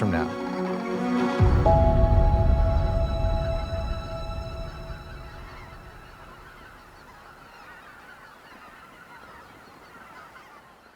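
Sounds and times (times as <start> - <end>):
soundtrack music: 0.0 - 7.0
cranes calling: 0.0 - 10.6.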